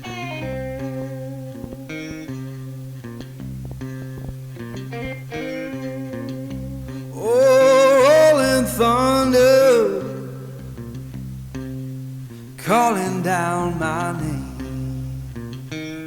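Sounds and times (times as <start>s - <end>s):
guitar-led song with bass: 0.0s - 16.0s
person singing: 7.0s - 10.8s, 12.6s - 15.4s.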